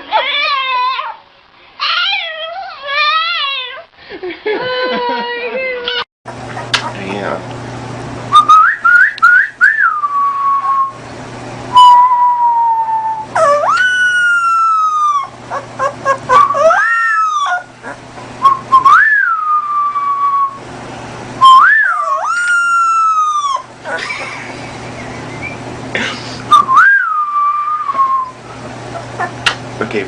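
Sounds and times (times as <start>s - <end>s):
dog whining howls: 0.0s - 1.2s, 1.8s - 3.9s, 11.8s - 20.6s, 21.4s - 24.0s.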